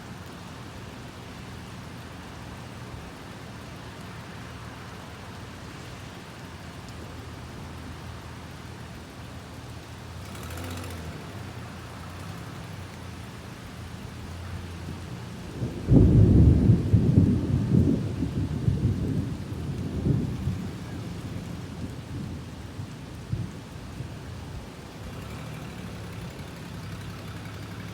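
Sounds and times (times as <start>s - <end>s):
steady rain falling: 0.0s - 27.9s
thunder rumbling: 15.4s - 24.1s.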